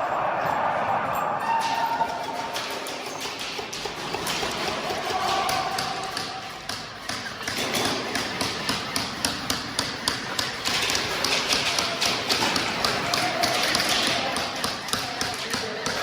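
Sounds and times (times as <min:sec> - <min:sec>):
background hubbub: 0:00.0 - 0:16.0
sharp taps and clacks: 0:00.4 - 0:16.0.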